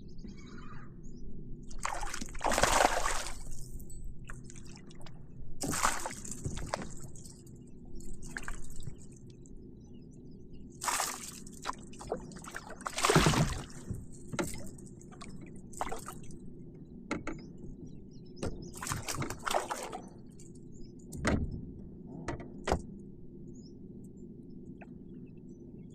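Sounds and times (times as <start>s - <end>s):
water splashing and dripping: 1.8s - 3.6s, 4.4s - 7.3s, 10.8s - 16.3s, 18.8s - 20.0s.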